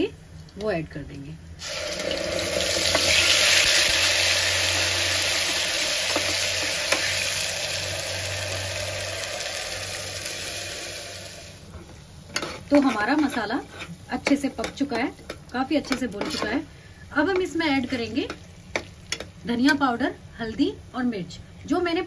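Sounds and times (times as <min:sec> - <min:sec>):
paste sizzling in hot oil: 0:01.6 - 0:11.7
spatula tapping a pot: 0:18.2 - 0:19.8.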